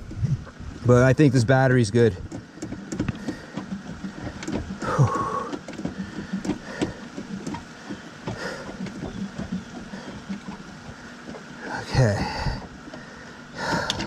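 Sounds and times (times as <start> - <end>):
tools clicking and knocking on parts: 13.6 - 14.0.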